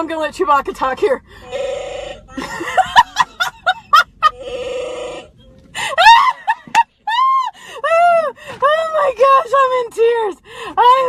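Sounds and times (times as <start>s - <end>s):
electronic growl drone: 4.3s - 5.4s.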